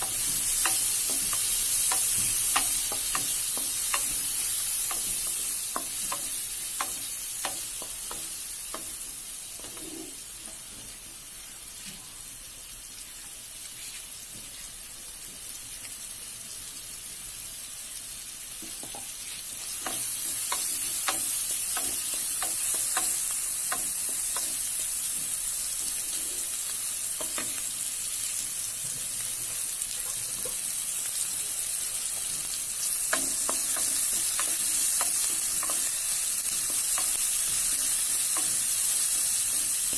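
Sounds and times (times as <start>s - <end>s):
hot oil sizzling in a pan: 0.0s - 39.9s.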